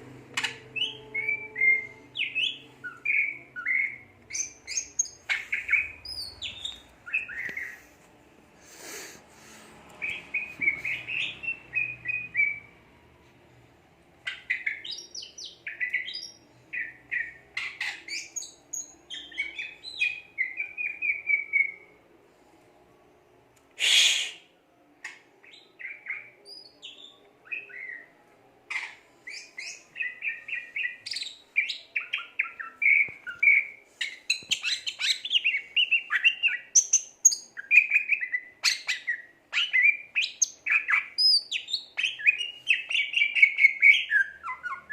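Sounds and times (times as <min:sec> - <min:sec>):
bird singing whistles and trills: 0:00.4 - 0:07.7, 0:29.3 - 0:44.9.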